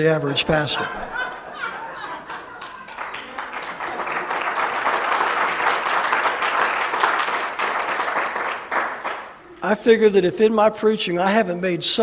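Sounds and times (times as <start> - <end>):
congregation applauding: 0.0 - 9.6.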